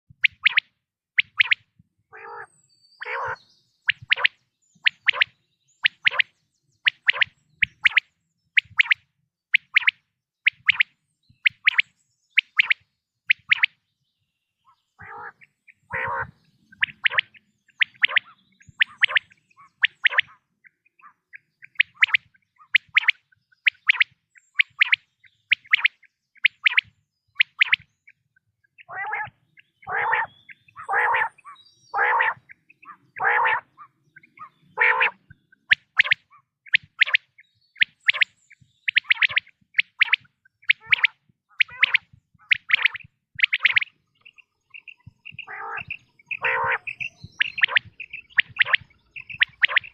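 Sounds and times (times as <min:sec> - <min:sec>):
quail calling: 0:00.2 - 0:05.3, 0:14.7 - 0:27.9, 0:28.7 - 0:49.9.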